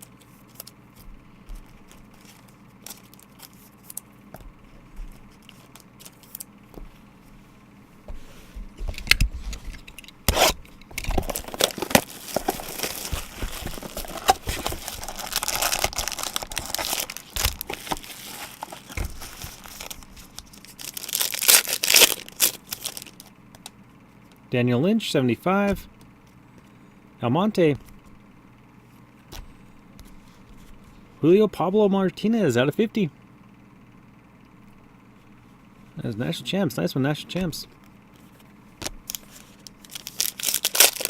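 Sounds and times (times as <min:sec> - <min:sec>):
packaging tearing and crinkling: 0:01.8 - 0:04.0, 0:10.3 - 0:23.3, 0:38.8 - 0:41.0.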